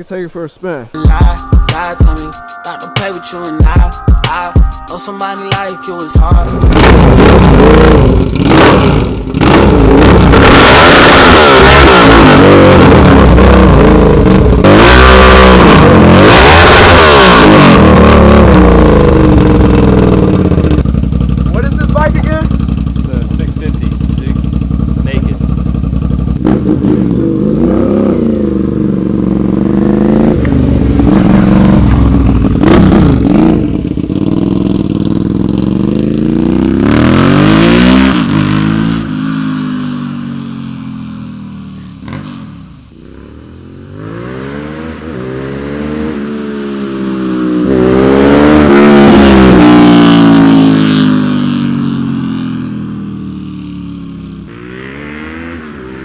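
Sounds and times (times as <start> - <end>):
motorcycle engine revving: 6.3 - 56.0.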